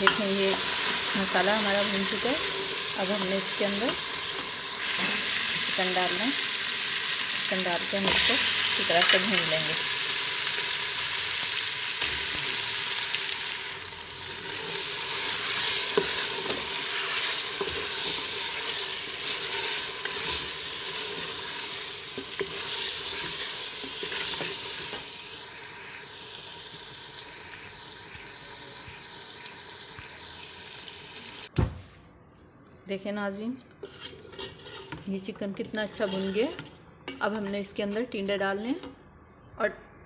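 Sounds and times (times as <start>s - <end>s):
chicken sizzling in oil: 0.0s - 31.5s
wooden spoon scraping pot: 33.8s - 36.7s.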